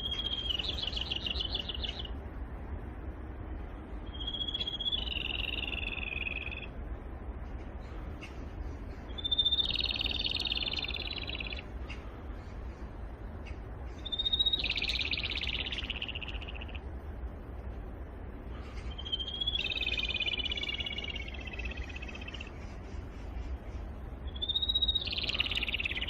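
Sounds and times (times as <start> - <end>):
robin singing trill: 0.0 - 26.0.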